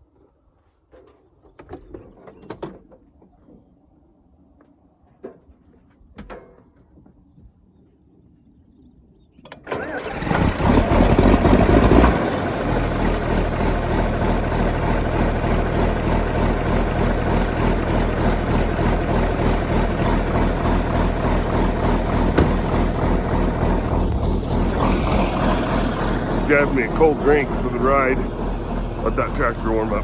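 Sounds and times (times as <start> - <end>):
tractor engine starting and idling: 9.5 - 30.0.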